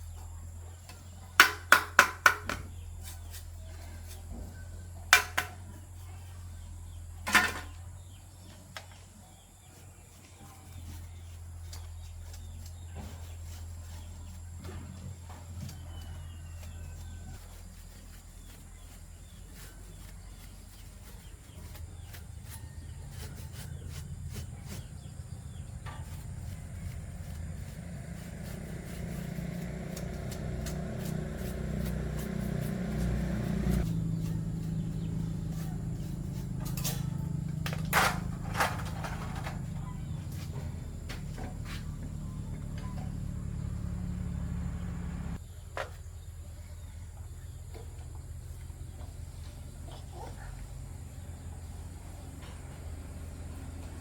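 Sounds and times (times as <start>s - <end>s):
electric fan motor humming: 19.0s - 45.4s.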